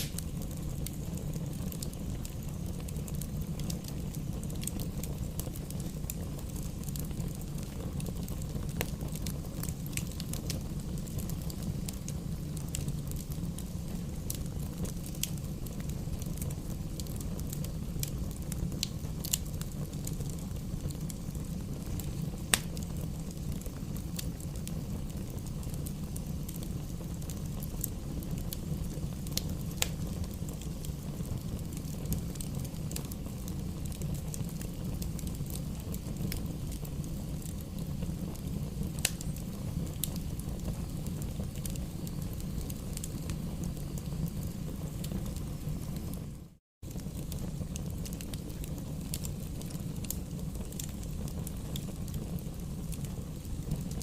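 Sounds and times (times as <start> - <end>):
rumble of flames: 0.0 - 54.0
wood crackling and popping: 0.0 - 54.0.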